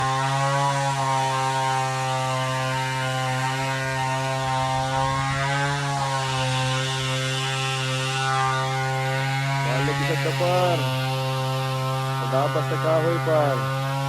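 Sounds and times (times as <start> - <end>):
chainsaw engine running: 0.0 - 14.0.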